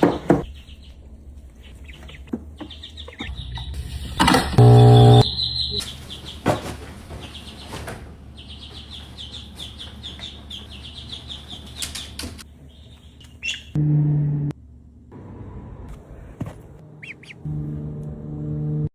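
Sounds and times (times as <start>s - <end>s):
ducklings peeping: 0.0s - 13.8s, 17.0s - 17.5s
low buzzing tone: 3.8s - 5.4s.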